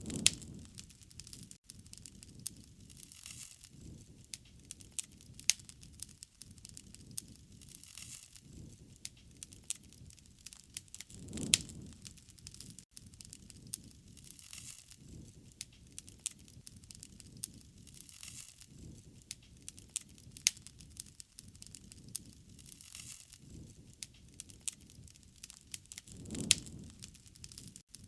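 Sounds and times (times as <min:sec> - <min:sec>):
low rushing fire sound: 0:00.0 - 0:01.6, 0:08.4 - 0:14.3, 0:23.4 - 0:27.8
wood fire crackling: 0:00.0 - 0:28.0.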